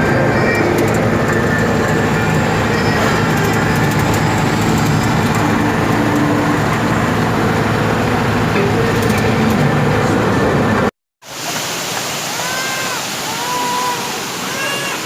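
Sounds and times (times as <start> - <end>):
road vehicle engine and tyre rumble: 0.0 - 10.9.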